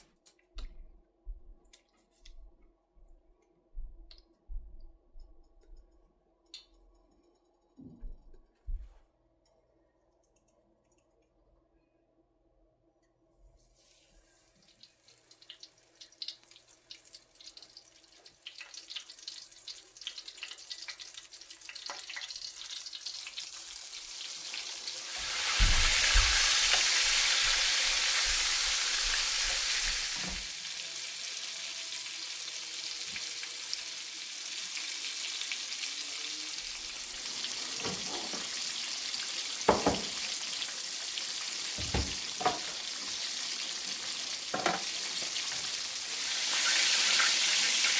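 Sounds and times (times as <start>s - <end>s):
food sizzling in a pan: 13.8s - 47.9s
utensil knocking against pan: 39.7s - 40.1s.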